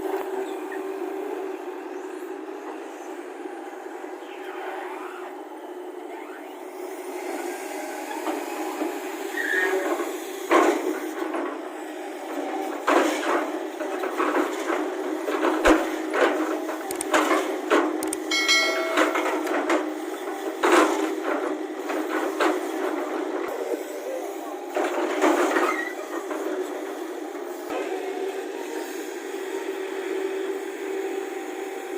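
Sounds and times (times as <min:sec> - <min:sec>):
excavator engine running: 0:05.4 - 0:31.9
heavy clanks and knocks: 0:18.2 - 0:19.9.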